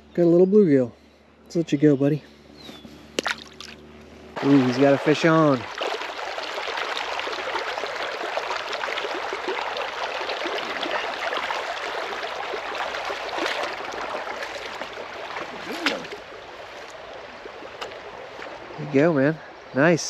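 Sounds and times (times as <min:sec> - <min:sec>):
river water rushing: 0:04.4 - 0:19.0.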